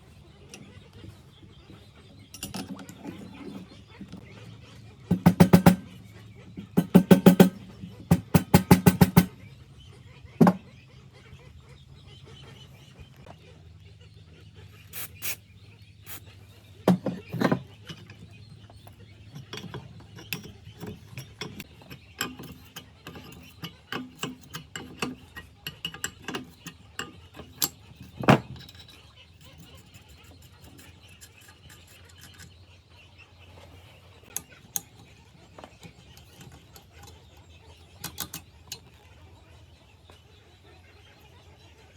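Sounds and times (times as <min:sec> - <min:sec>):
metallic clicks and knocks of tools: 0:02.3 - 0:03.1, 0:05.1 - 0:06.0, 0:06.7 - 0:09.3, 0:16.9 - 0:32.6, 0:34.3 - 0:39.0.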